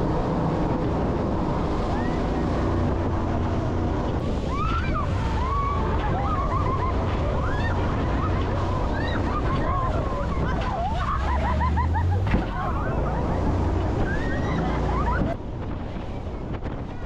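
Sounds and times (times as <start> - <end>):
boat engine hum: 0.0 - 17.0
water rushing: 0.0 - 17.0
wind buffeting microphone: 0.0 - 17.0
voices: 4.3 - 15.4.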